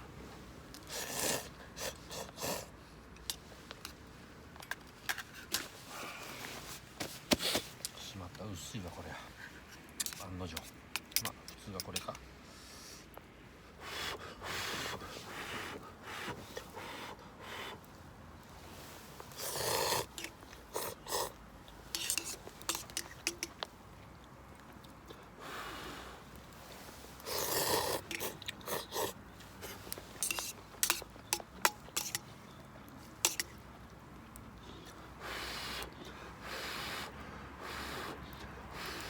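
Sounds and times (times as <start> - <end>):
noodles slurped: 0.8 - 2.8, 19.1 - 23.6, 26.8 - 32.3
chewing: 27.2 - 35.1.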